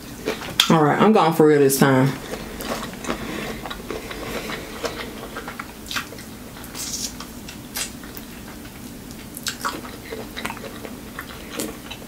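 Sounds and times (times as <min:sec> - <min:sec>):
wet chewing sounds: 0:00.0 - 0:00.8, 0:02.2 - 0:12.0.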